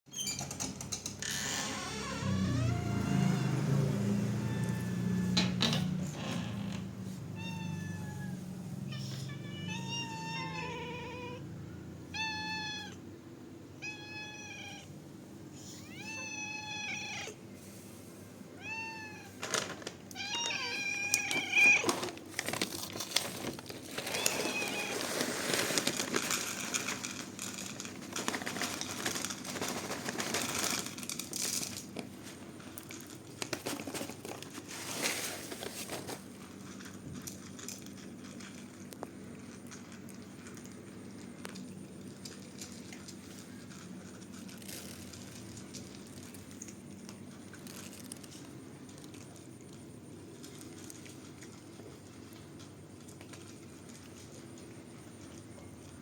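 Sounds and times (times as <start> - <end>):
cats meowing: 2.0 - 5.5, 7.2 - 13.1, 13.8 - 14.9, 15.6 - 17.4, 18.6 - 19.4, 20.1 - 22.0, 24.0 - 25.2
rustling noise: 21.3 - 37.6.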